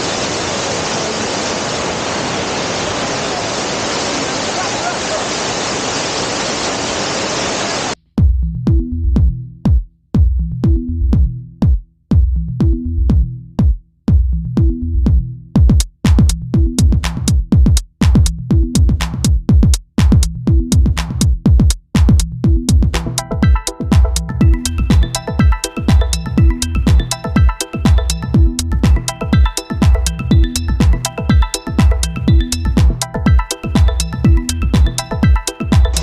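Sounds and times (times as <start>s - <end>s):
waterfall rushing: 0.0s - 8.0s
electronic music with drum-machine beat: 8.2s - 36.0s.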